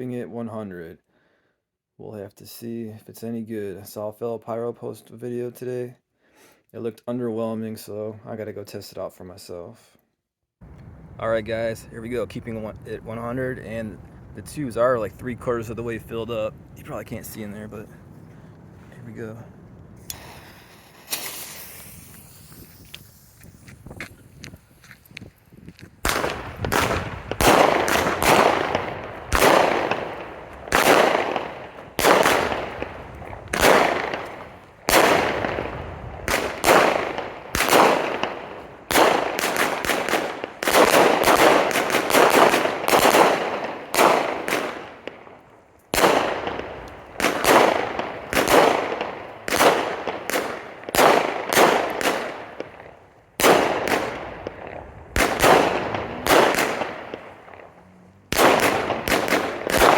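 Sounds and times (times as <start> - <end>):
firework shots: 20.0 - 24.8, 26.0 - 59.9
firework crackling: 20.0 - 24.9, 26.0 - 59.9.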